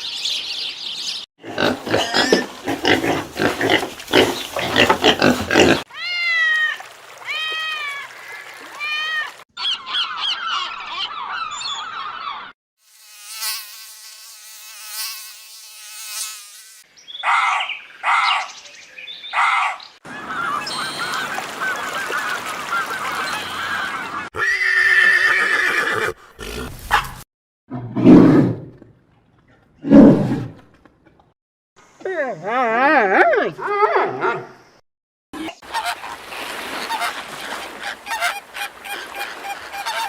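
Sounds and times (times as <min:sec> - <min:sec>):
buzzing insect-like drone: 0:12.8 - 0:16.9.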